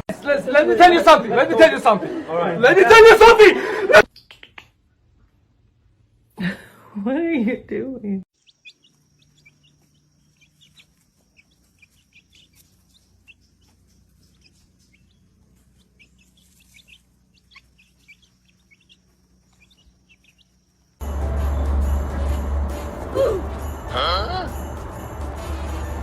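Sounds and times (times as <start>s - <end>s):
small birds chirping: 8.3s - 21.0s.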